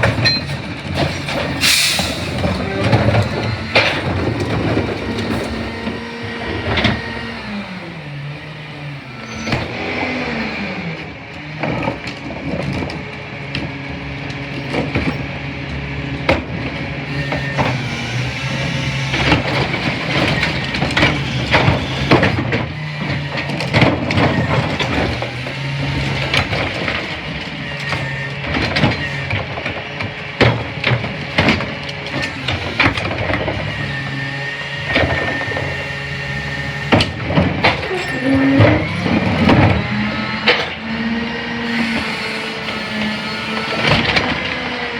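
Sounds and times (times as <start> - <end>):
trash cracking and crushing: 0.0 - 9.9, 16.4 - 44.9
garbage truck engine running: 0.0 - 44.9.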